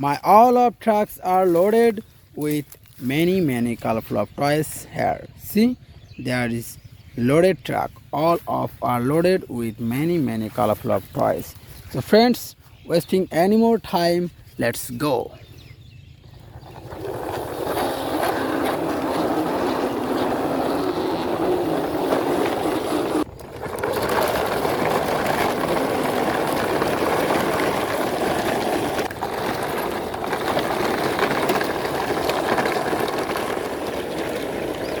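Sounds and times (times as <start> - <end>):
toy truck wheels rolling: 16.3 - 35.0.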